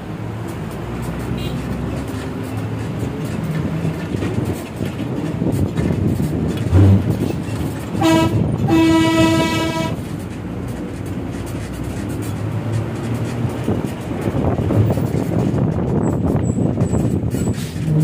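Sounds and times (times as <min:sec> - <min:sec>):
bus engine rumble: 0:00.0 - 0:18.0
road noise: 0:00.0 - 0:18.0
vehicle air horn: 0:01.4 - 0:01.6, 0:08.0 - 0:10.0.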